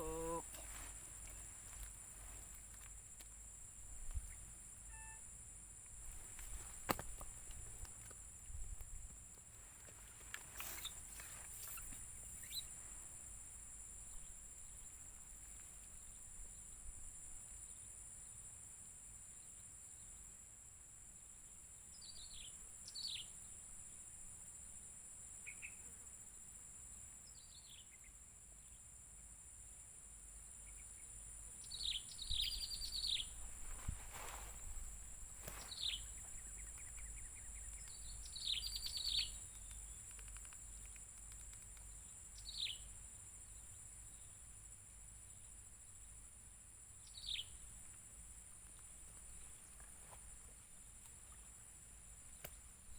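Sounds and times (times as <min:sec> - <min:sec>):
birds chirping: 0:00.0 - 0:01.5, 0:35.4 - 0:40.4
insects droning: 0:00.0 - 0:52.9.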